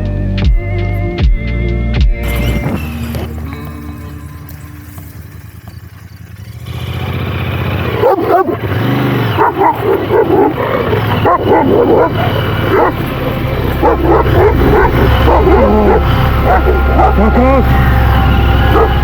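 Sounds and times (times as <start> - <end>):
motorcycle engine running: 2.0 - 19.0
dogs barking aggressively: 7.6 - 19.0.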